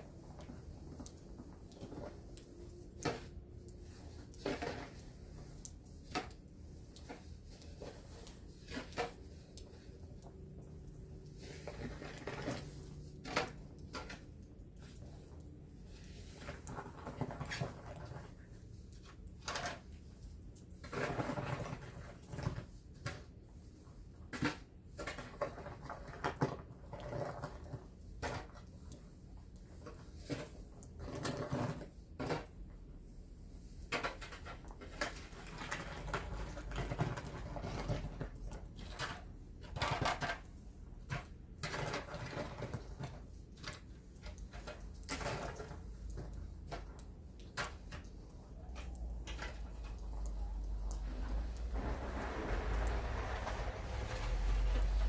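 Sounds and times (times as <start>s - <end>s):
short scraping sounds: 51.0s - 55.0s.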